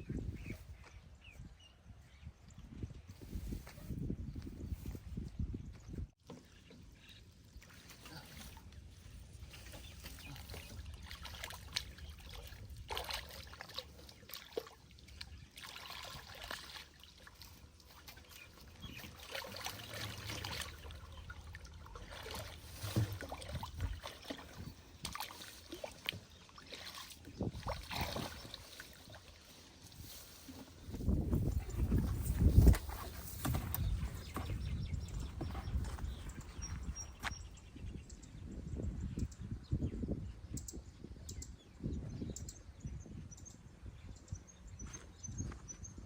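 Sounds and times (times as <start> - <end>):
water splashing and trickling: 6.2 - 35.8.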